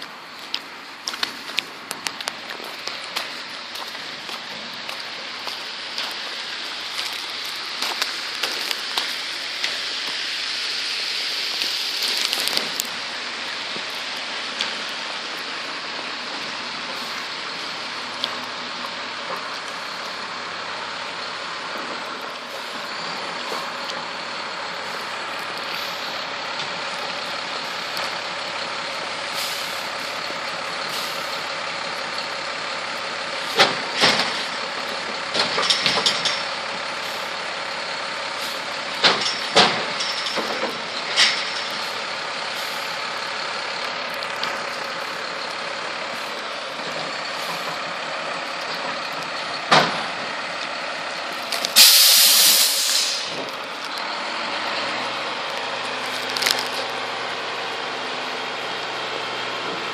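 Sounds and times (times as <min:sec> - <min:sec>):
garbage truck running: 0:00.0 - 0:59.9
sharp clanks and bangs: 0:35.3 - 0:36.6, 0:39.0 - 0:42.0.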